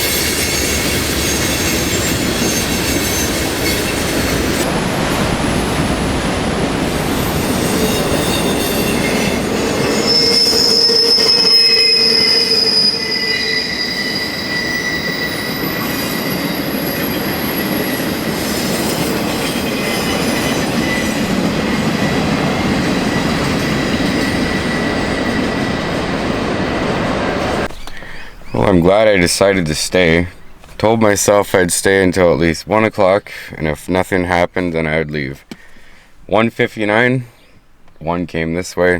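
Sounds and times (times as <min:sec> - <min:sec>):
train wheels squealing on rails: 0:00.0 - 0:05.8, 0:06.8 - 0:28.7
rumble of train cars: 0:00.0 - 0:33.0.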